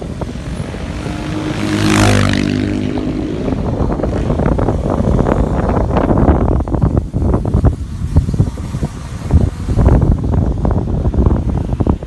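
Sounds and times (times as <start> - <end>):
vehicle passing close: 0.0 - 6.5
motorcycle engine running: 0.0 - 12.0
traffic noise: 0.0 - 12.0.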